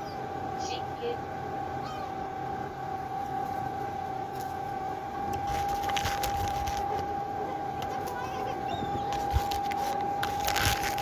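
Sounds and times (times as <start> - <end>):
ship engine droning: 0.0 - 11.0.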